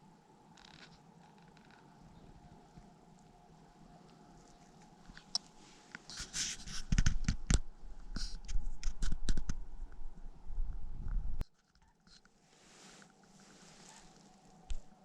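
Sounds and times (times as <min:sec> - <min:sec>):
heavy low rumble: 0:09.4 - 0:11.4.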